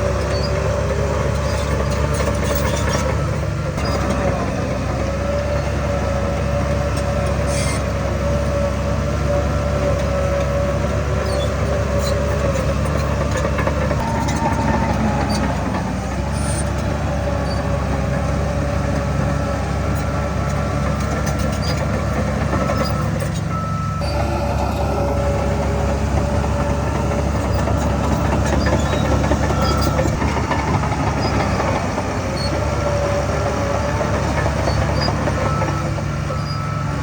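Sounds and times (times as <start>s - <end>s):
heavy diesel machinery running: 0.0s - 37.0s
constant whine: 11.4s - 37.0s.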